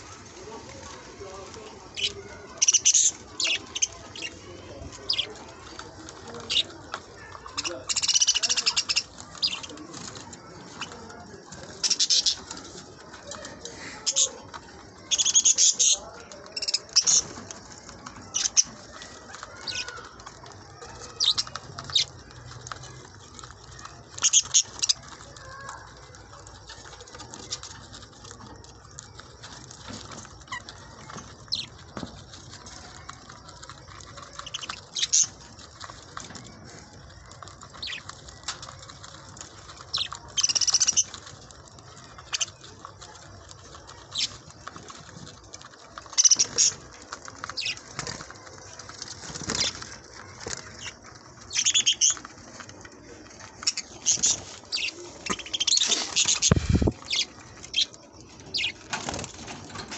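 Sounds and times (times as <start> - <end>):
wing flutters: 0.0 - 59.9
budgerigars chattering: 1.8 - 5.4, 7.5 - 9.8, 11.8 - 12.5, 15.0 - 17.3, 34.4 - 35.3, 39.9 - 41.1, 46.2 - 46.8, 47.5 - 47.8, 50.6 - 52.2, 53.6 - 58.8.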